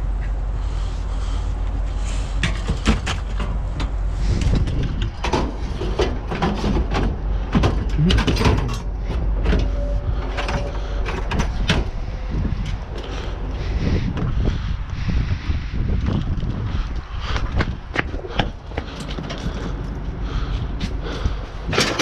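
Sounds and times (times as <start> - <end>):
wind rumble on microphone: 0.0 - 22.0
scrap metal knocking and clanking: 2.3 - 13.2.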